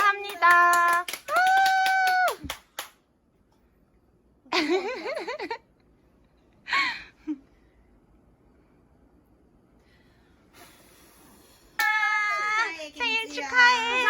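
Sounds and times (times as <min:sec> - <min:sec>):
women cheering with warbling: 0:01.3 - 0:02.5
woman exclaiming: 0:11.8 - 0:14.0.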